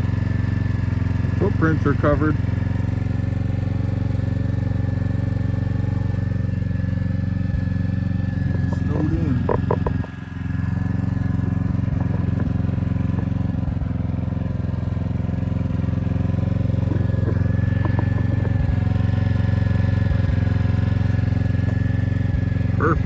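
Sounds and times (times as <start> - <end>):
engine hum: 0.0 - 23.0
high steady whine: 15.1 - 23.0.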